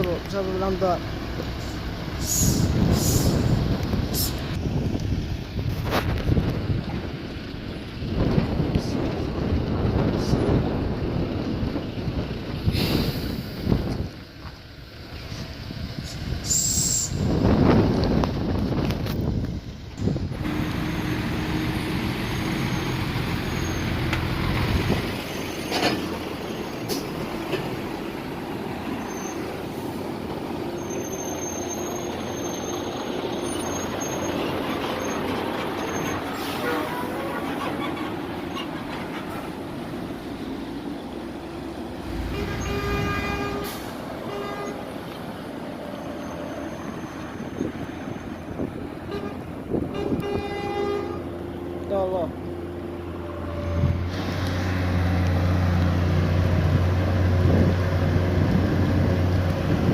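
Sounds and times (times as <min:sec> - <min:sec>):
truck diesel engine running: 0:00.0 - 0:59.9
air hiss: 0:01.6 - 0:03.5, 0:12.7 - 0:13.8
vehicle horn: 0:36.5 - 0:37.4, 0:42.1 - 0:44.9, 0:49.0 - 0:51.3.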